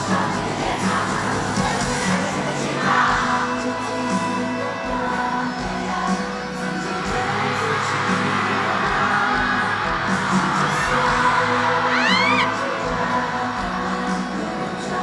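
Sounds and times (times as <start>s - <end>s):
live pop music: 0.0s - 15.0s
crowd cheering: 5.9s - 14.0s.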